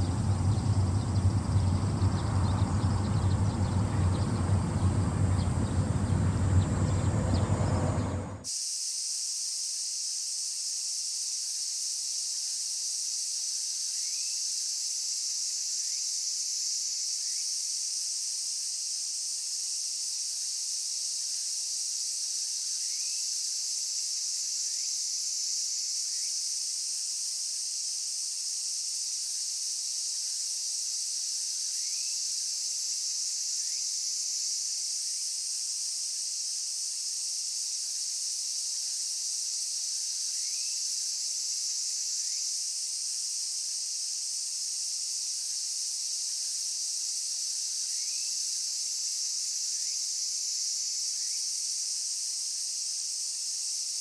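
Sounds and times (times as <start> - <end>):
faint short rising calls: 0.0 - 8.5
insects trilling: 0.0 - 9.3, 37.3 - 43.2, 44.1 - 54.0.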